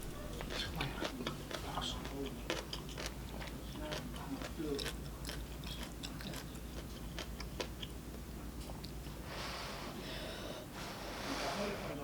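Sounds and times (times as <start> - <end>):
person chewing noodles: 0.4 - 8.0.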